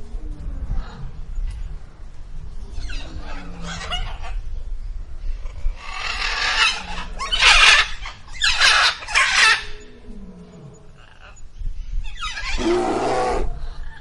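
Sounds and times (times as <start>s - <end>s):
animal screeching calls: 5.8s - 11.4s, 12.0s - 13.5s.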